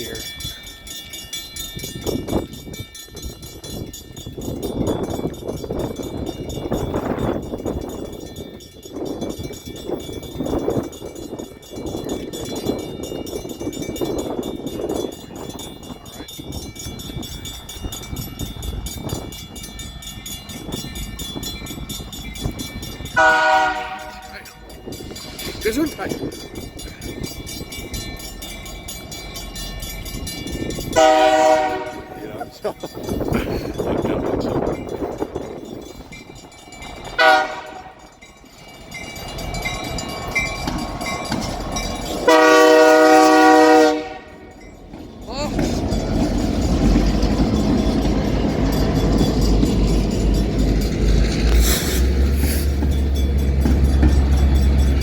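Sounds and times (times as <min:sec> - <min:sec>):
bell ringing rapidly: 0:00.0 - 0:42.6, 0:44.5 - 0:55.0
freight train rumbling past: 0:00.0 - 0:55.0
locomotive air horn chord: 0:23.2 - 0:24.5, 0:31.0 - 0:32.2, 0:37.2 - 0:38.0, 0:42.3 - 0:44.5.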